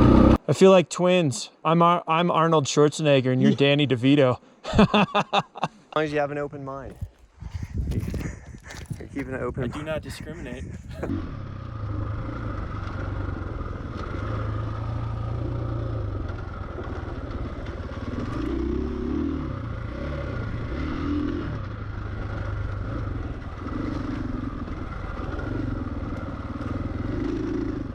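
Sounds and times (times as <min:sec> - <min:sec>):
dirt bike motor: 0:00.0 - 0:00.4, 0:06.8 - 0:27.9
clatter and scraping: 0:06.8 - 0:11.1.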